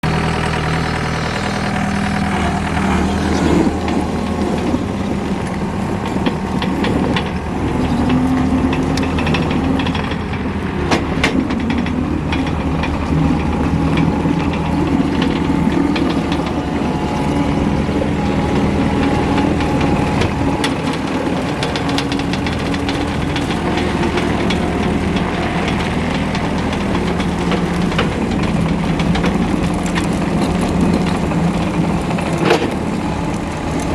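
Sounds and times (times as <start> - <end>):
diesel engine running: 0.0 - 33.9
sharp clicks and knocks: 2.1 - 33.9.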